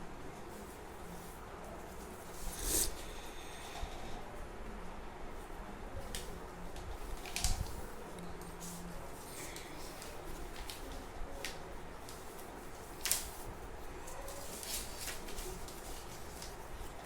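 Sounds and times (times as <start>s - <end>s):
paper rustling and crackling: 5.4s - 17.0s.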